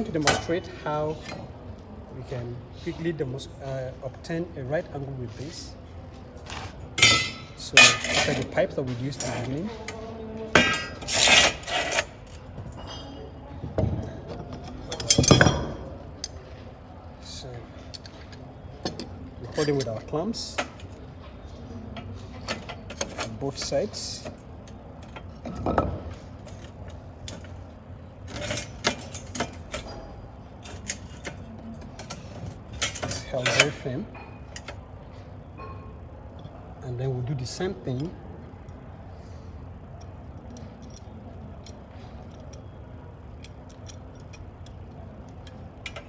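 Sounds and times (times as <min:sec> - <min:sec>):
metal pipes clanking: 0:00.0 - 0:01.5, 0:06.5 - 0:10.0, 0:10.6 - 0:16.0, 0:28.3 - 0:34.8, 0:40.4 - 0:46.0
metal pipes scraping: 0:06.5 - 0:10.0, 0:10.6 - 0:12.4.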